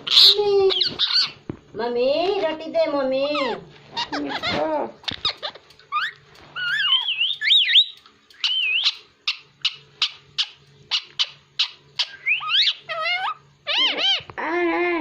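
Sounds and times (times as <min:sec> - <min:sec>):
parrot whistling: 0:05.9 - 0:14.3.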